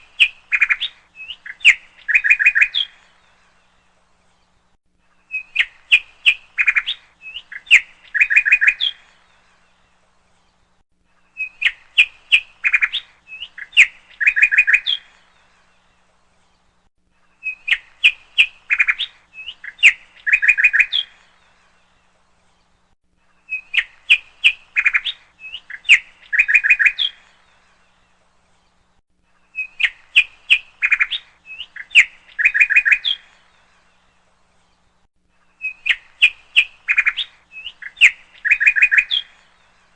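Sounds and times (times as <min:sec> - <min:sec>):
bird chirping sharp tweets: 0:05.3 - 0:09.4, 0:17.4 - 0:21.6, 0:23.4 - 0:27.6, 0:29.5 - 0:33.8, 0:35.5 - 0:39.8.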